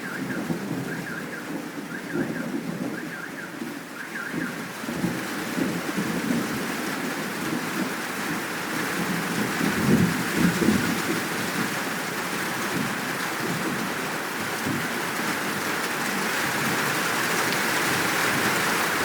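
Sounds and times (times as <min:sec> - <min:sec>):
thunder rumbling: 0:00.0 - 0:11.8
steady rain falling: 0:00.0 - 0:19.0.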